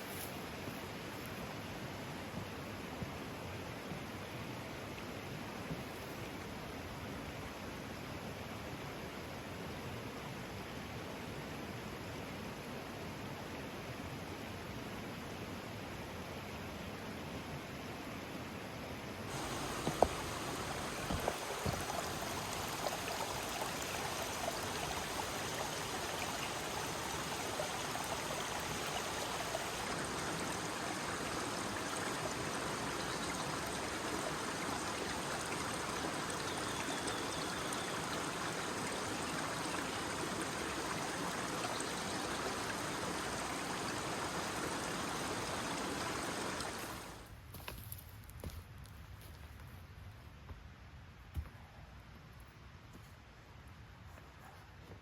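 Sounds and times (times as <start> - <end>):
stream water running: 19.3 - 47.3.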